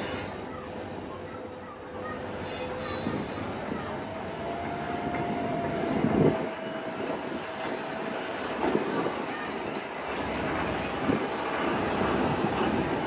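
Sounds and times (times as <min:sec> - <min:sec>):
thin high wheel squeal: 0:02.2 - 0:05.7.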